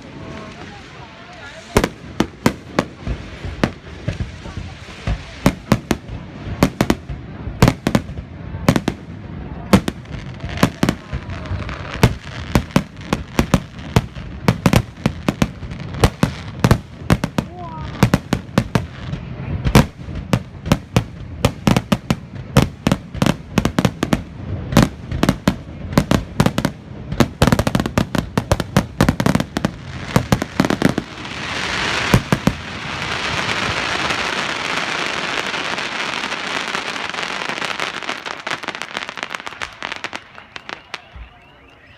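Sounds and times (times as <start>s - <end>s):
fireworks crackling: 0.0s - 41.9s
firework shells bursting: 9.8s - 41.3s.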